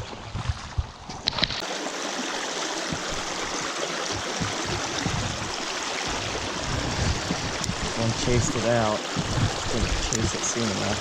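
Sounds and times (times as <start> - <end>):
stream water rushing: 1.4 - 11.0
short knocks: 2.9 - 10.4.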